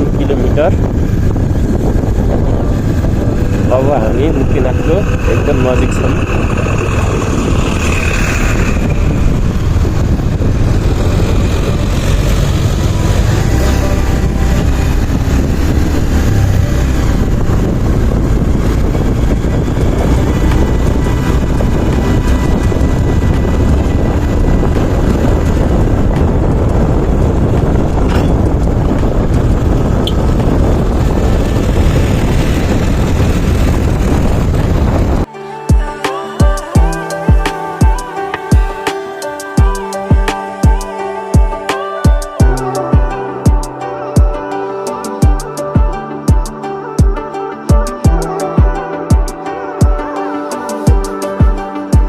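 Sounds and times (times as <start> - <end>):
motorcycle engine running: 0.0 - 35.3
wind noise rumble: 0.0 - 38.9.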